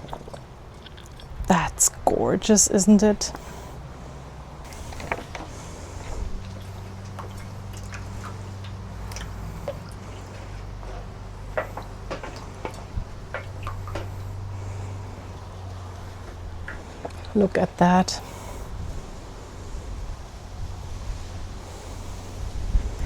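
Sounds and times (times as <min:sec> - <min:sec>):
water splashing and dripping: 0:00.0 - 0:01.5, 0:04.7 - 0:17.7
low steady hum: 0:00.0 - 0:23.0.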